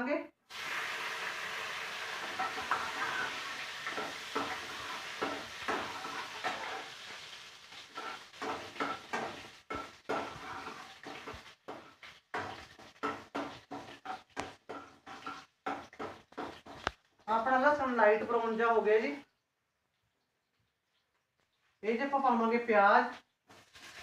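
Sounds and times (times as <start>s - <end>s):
seeds and garlic sizzling in oil: 0.4s - 19.2s, 21.0s - 24.0s
spatula scraping steel pan: 2.2s - 16.9s.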